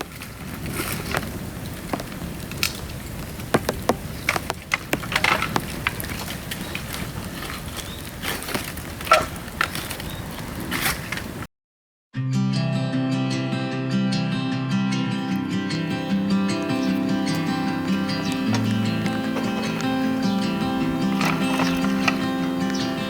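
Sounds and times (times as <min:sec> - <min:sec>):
bamboo cracking and popping in fire: 0:00.0 - 0:11.5, 0:15.2 - 0:23.0
rain hissing: 0:15.2 - 0:23.0.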